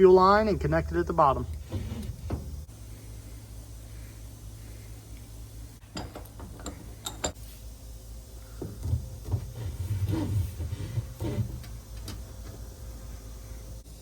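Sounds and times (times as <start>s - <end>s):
low rumbling handling noise: 0.0s - 2.8s.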